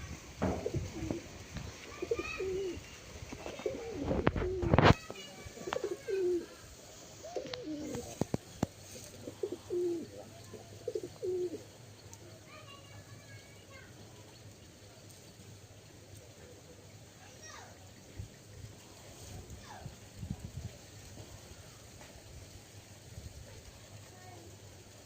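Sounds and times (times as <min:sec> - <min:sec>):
pigeons cooing: 0:00.0 - 0:04.8, 0:05.4 - 0:06.6, 0:07.2 - 0:11.8.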